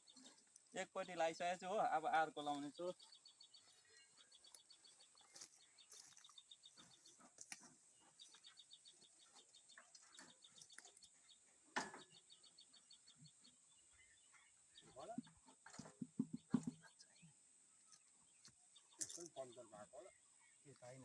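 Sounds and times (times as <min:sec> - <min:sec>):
rapid high bird chirping: 0:00.0 - 0:15.5.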